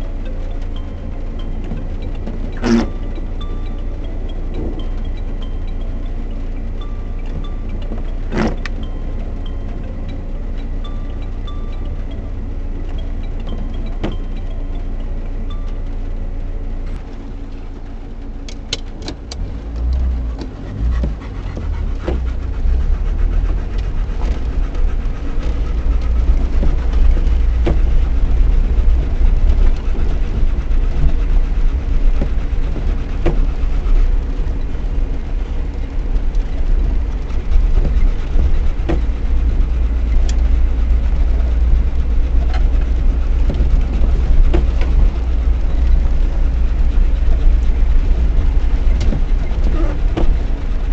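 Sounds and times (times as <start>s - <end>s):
car engine droning in cabin: 0.0s - 50.9s
suspension knocks and rattles: 18.4s - 50.9s.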